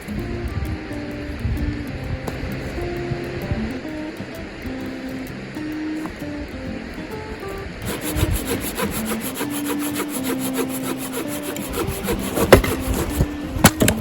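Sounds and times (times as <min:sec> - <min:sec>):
hand saw cutting wood: 0:07.8 - 0:14.0
sharp knocks: 0:11.5 - 0:14.0.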